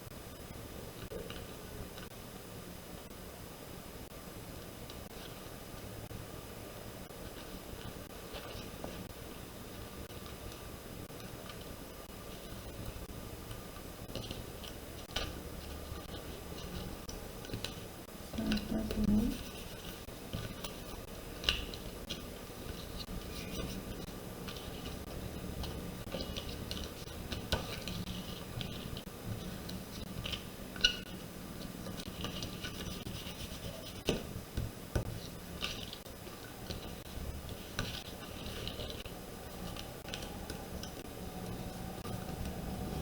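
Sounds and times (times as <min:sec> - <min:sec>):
faint steady hum: 0:00.0 - 0:43.0
paper being handled and rubbed: 0:14.1 - 0:34.2, 0:35.0 - 0:39.9.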